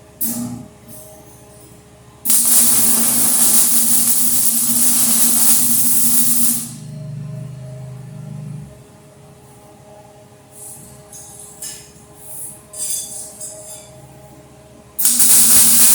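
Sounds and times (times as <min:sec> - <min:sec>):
arc welder hissing: 0:02.3 - 0:06.8, 0:15.0 - 0:15.9.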